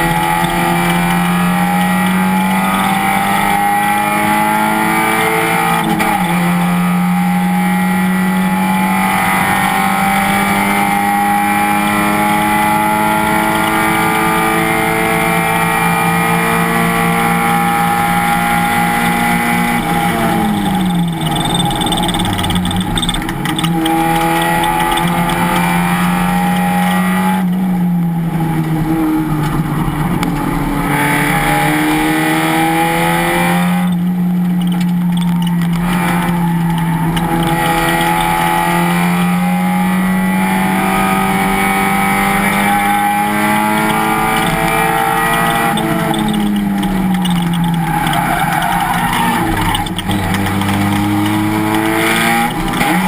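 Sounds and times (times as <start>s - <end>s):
race car engine revving: 0.0s - 53.0s.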